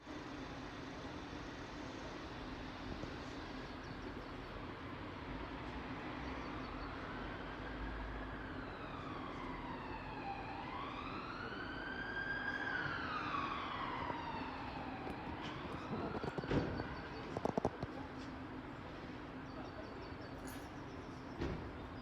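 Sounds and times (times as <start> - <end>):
emergency siren wailing: 6.5 - 17.6.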